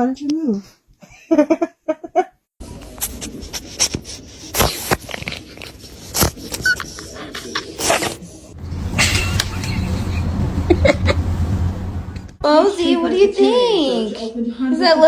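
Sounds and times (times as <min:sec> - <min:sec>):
noisy background: 0:07.7 - 0:13.0.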